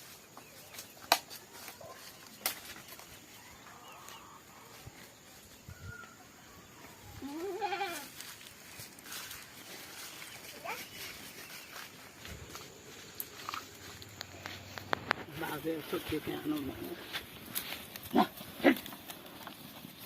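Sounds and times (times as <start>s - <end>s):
goat bleating: 7.2s - 8.2s.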